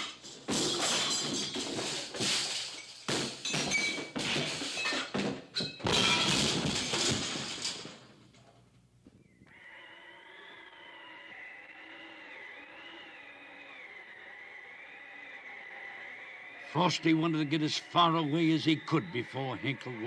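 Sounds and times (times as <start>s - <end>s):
horses neighing: 9.5s - 20.0s.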